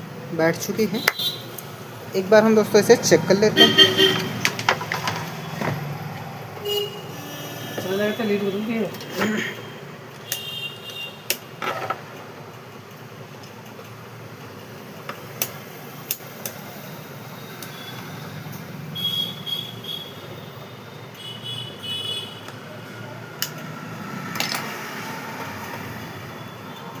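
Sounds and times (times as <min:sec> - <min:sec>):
plastic parts clicking and knocking: 0:04.4 - 0:05.8, 0:24.3 - 0:24.8.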